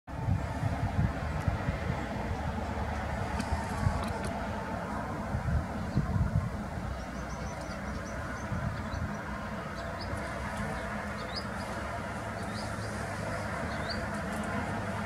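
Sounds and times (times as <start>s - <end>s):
steady low rumble: 0.1s - 15.0s
bird chirping: 7.0s - 11.8s, 13.6s - 14.1s.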